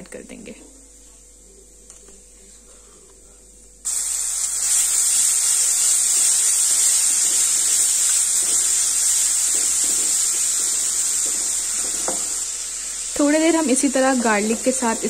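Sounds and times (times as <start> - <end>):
garlic paste sizzling in oil: 3.8 - 15.0.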